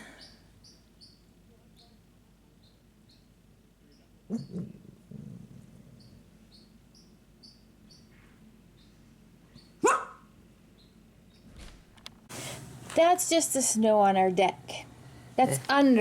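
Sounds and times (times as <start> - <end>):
small bird chirping rapidly: 0.2 - 4.6, 5.9 - 9.9, 10.7 - 11.6.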